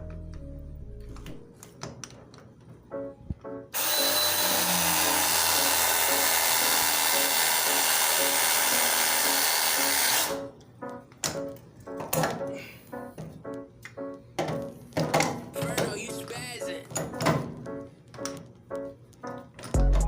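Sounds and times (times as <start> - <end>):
background music: 0.0 - 20.0
power tool running: 3.8 - 10.5.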